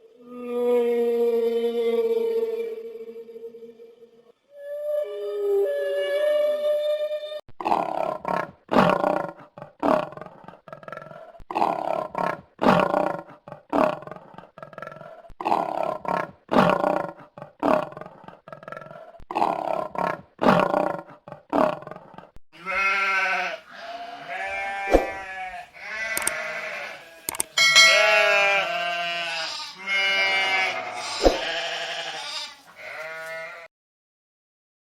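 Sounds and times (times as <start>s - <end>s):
donkey braying: 22.6s - 33.7s.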